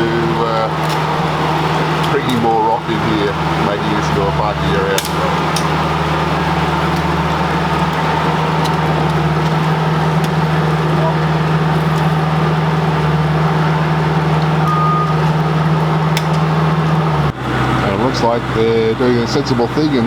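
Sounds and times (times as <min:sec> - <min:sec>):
engine running low hum: 0:00.0 - 0:20.0
short high beep: 0:14.6 - 0:15.3.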